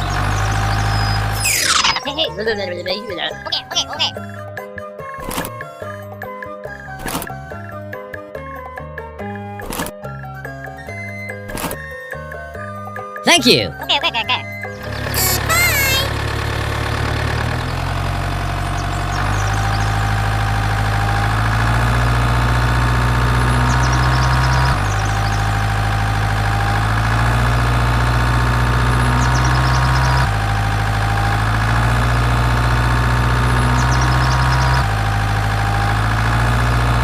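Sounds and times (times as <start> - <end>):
engine-like drone: 0.0 - 4.2, 14.7 - 37.0.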